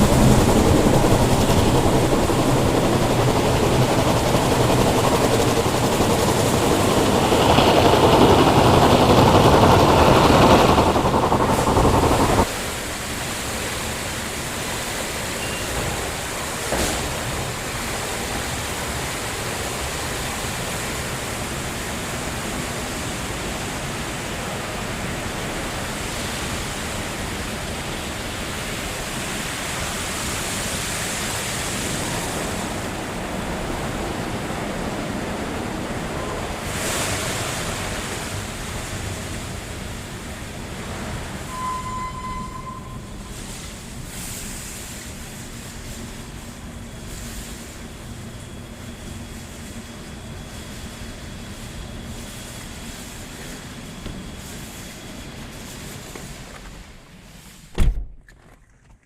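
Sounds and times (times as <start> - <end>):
car wash rushing: 0.0 - 41.5.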